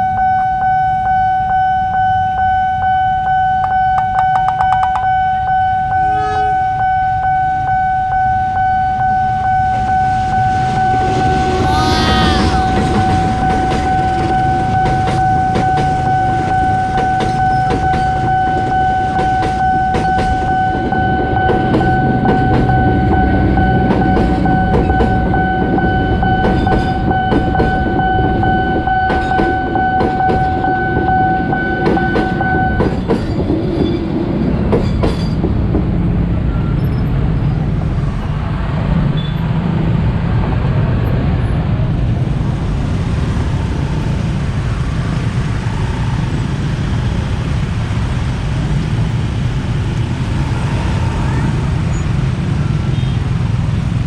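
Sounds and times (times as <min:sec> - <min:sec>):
crossing alarm electronic tone: 0:00.0 - 0:33.0
road traffic noise: 0:01.4 - 0:54.0
train wheels clattering over joints: 0:31.8 - 0:36.2.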